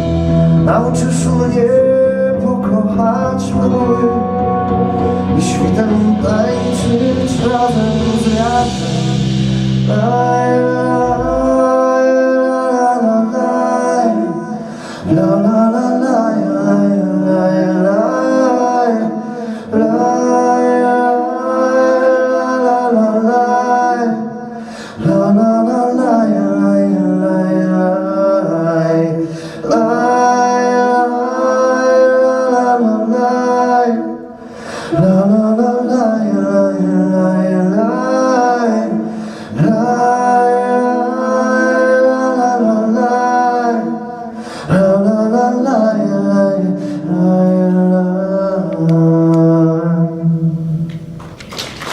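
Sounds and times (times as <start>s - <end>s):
acoustic accompaniment: 0.0s - 45.5s
person singing la la la: 0.0s - 51.1s
singer breathing: 14.5s - 15.1s, 19.2s - 19.8s, 24.4s - 25.0s, 29.2s - 29.7s, 34.3s - 35.0s, 39.0s - 39.6s, 44.2s - 44.8s.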